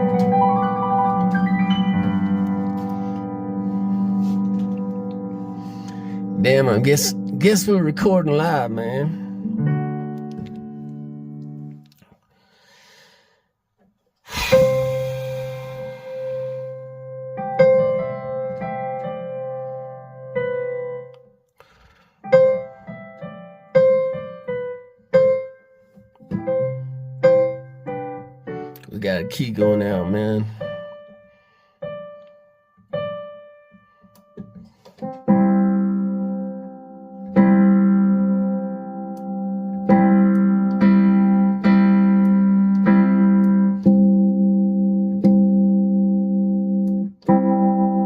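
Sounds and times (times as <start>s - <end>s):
piano chord struck: 0.0s - 11.8s, 14.3s - 21.2s
piano-toned keyboard chords: 0.0s - 12.0s, 14.4s - 21.5s, 22.2s - 48.0s.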